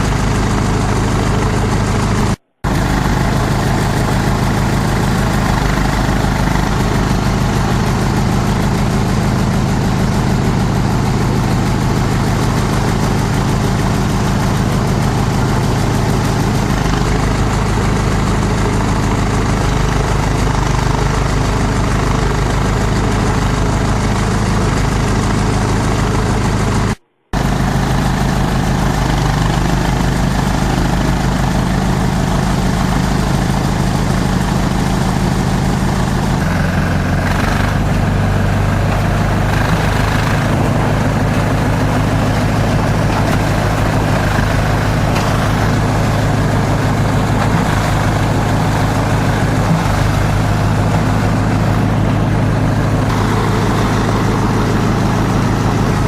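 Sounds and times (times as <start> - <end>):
shredder machine droning: 0.0 - 56.0.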